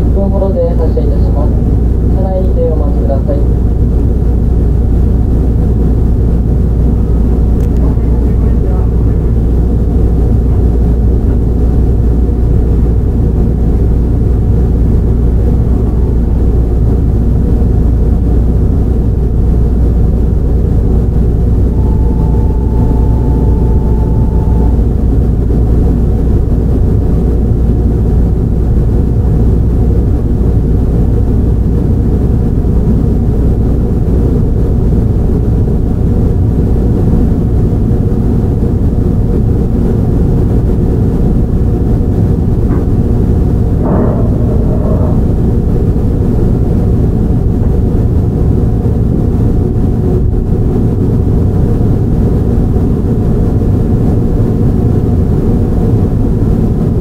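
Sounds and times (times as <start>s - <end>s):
train interior rumble: 0.0s - 57.0s
thin steady tone: 21.1s - 25.2s, 43.8s - 45.7s.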